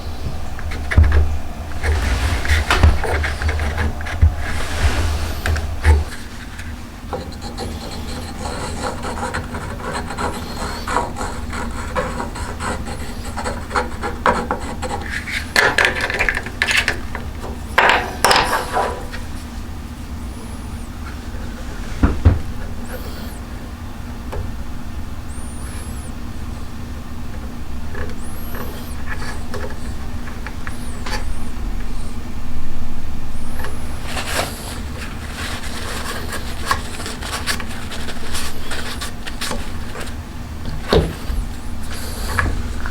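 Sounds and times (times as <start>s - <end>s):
hand tool scraping wood: 0.0s - 19.3s.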